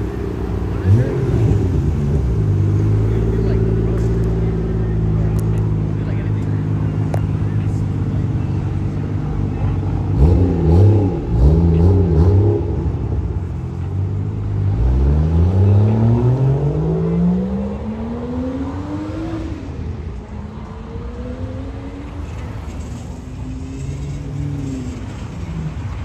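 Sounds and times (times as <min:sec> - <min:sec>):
car engine revving and accelerating: 0:00.0 - 0:26.0.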